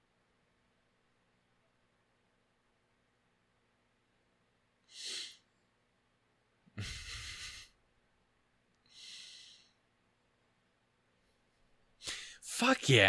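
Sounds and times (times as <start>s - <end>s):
man breathing close to microphone: 8.9s - 9.8s.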